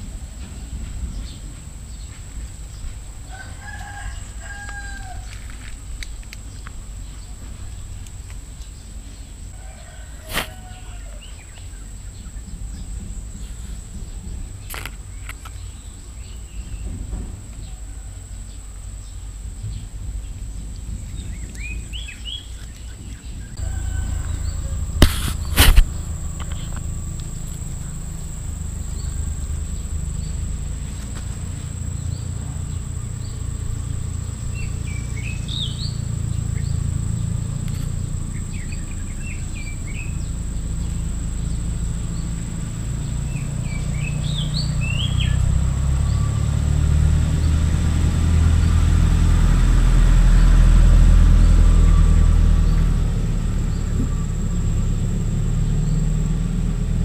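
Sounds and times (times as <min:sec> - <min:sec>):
small birds chirping: 0:00.0 - 0:48.9
low rumble: 0:11.8 - 0:57.0
steady high whine: 0:23.4 - 0:55.7.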